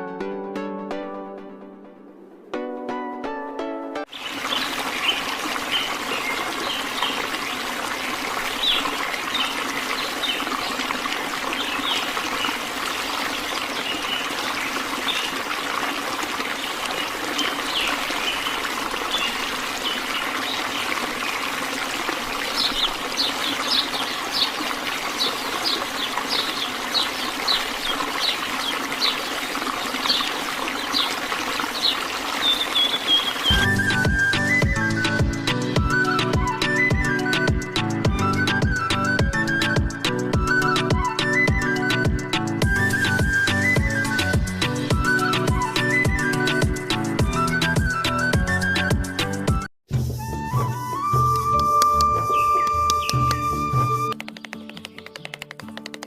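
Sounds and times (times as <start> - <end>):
small birds chirping: 4.1 - 7.7, 8.5 - 10.8, 11.4 - 15.4, 16.6 - 21.5, 22.4 - 33.7, 51.9 - 56.0
water trickling: 4.1 - 34.3.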